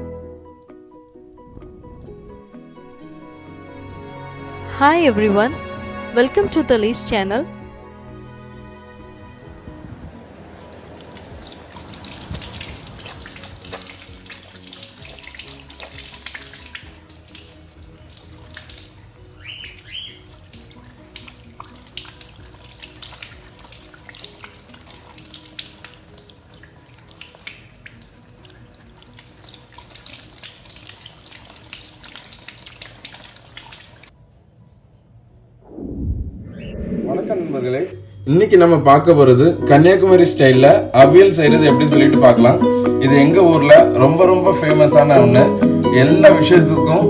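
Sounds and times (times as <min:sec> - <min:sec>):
soft background music: 0:00.0 - 0:35.7, 0:37.1 - 0:47.0
water running and splashing: 0:10.6 - 0:34.1
bird chirps: 0:19.4 - 0:20.3.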